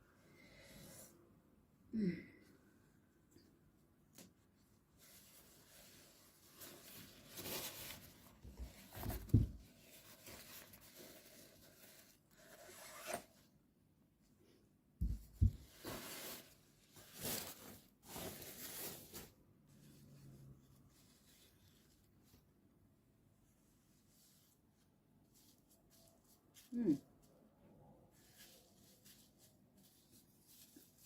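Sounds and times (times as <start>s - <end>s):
rustling of hair covering: 4.1s - 12.6s, 15.0s - 22.6s, 23.5s - 27.5s, 28.1s - 31.0s.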